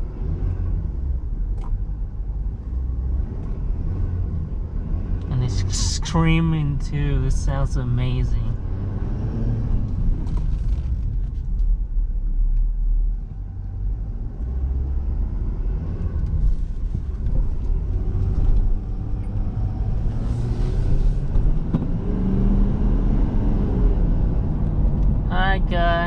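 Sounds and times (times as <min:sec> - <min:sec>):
road noise: 0:00.0 - 0:26.0
truck diesel engine rumble: 0:04.6 - 0:08.8.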